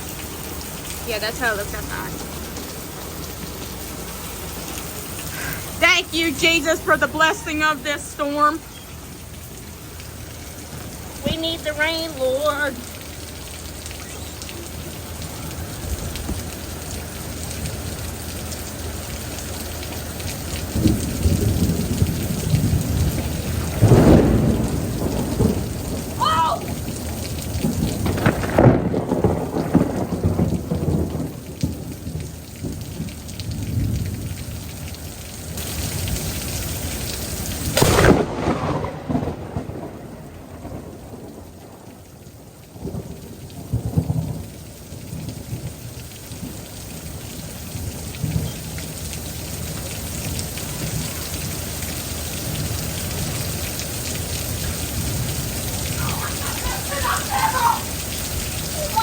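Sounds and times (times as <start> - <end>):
thunder rumbling: 0.0 - 34.6, 35.6 - 46.7, 47.5 - 59.0
steady rain: 0.0 - 59.0
sharp thunder clap: 20.8 - 32.0, 37.7 - 41.8.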